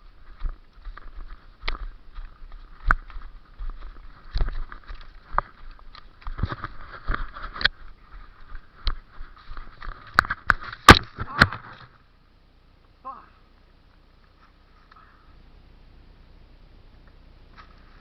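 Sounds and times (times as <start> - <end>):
rustling and scuffing movement: 0.0 - 12.0, 17.5 - 18.0.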